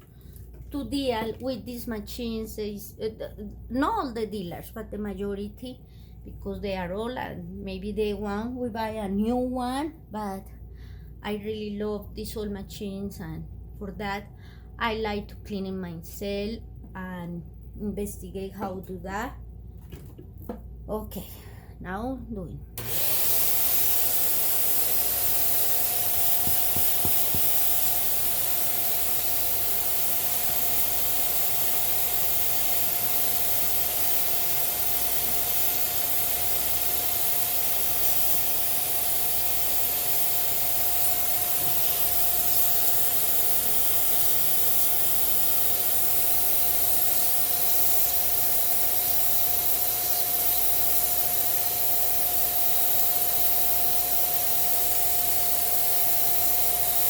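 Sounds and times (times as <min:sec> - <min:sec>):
air blower rushing hiss: 0:22.8 - 0:57.0
motor whine: 0:22.8 - 0:57.0.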